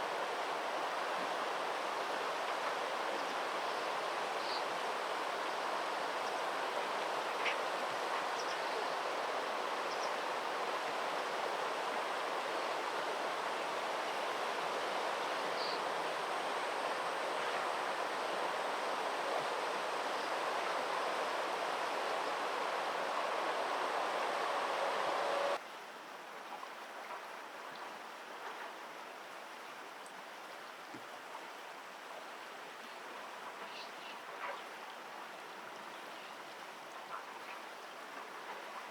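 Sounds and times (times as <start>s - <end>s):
stream water rushing: 0.0s - 28.3s
background hiss: 0.0s - 38.9s.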